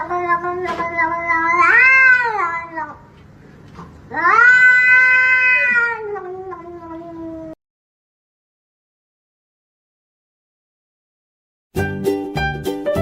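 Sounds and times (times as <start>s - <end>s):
cat yowling: 0.0s - 3.0s, 4.1s - 7.6s.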